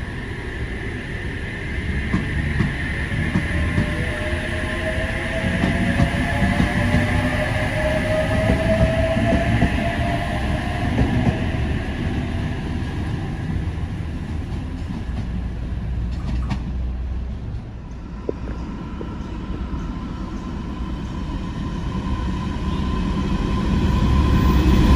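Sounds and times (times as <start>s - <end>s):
whine: 0.0s - 14.0s
train rumbling: 0.0s - 24.9s.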